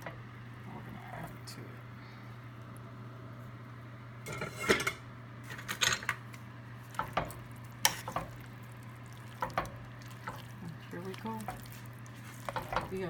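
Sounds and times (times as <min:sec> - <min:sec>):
steady low hum: 0:00.0 - 0:13.0
metal utensil scraping a skillet: 0:04.3 - 0:05.0.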